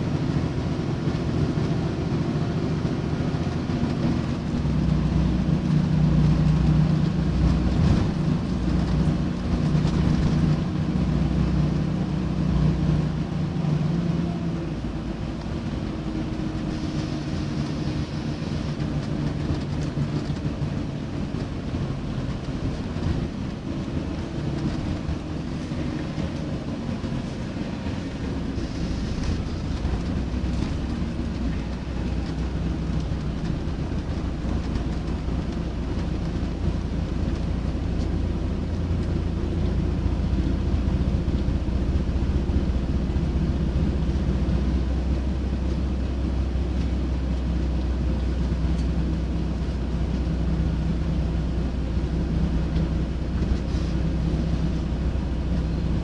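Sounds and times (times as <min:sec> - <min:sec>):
bus diesel engine humming: 0:00.0 - 0:56.0.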